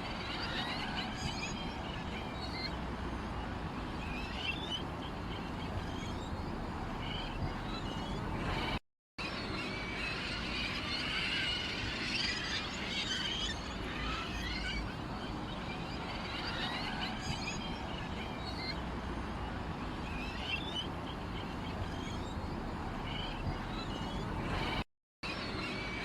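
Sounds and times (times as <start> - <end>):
small birds chirping: 3.4 - 8.8, 19.5 - 24.8.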